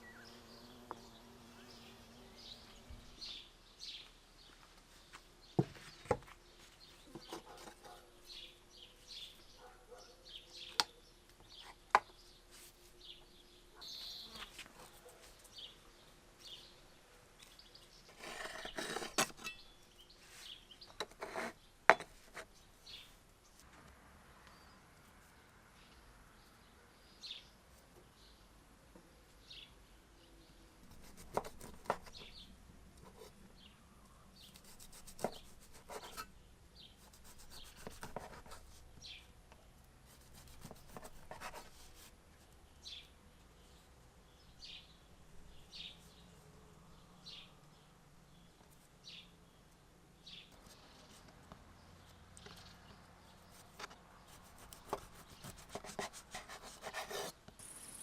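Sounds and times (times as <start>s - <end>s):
small bird chirping: 13.0s - 15.8s, 47.0s - 55.8s, 57.2s - 58.0s
clicks and scraping: 18.1s - 19.6s.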